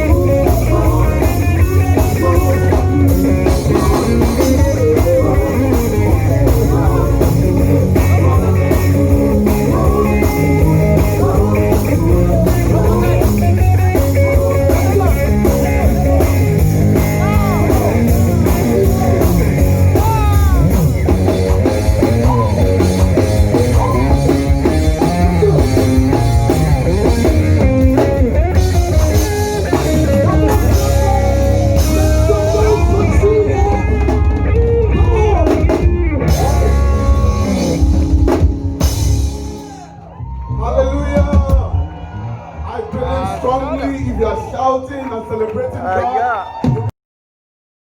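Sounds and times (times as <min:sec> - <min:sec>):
person singing: 0:00.0 - 0:20.9, 0:21.6 - 0:38.0
drum kit: 0:00.0 - 0:42.2, 0:46.5 - 0:46.9
electric guitar: 0:00.0 - 0:43.8.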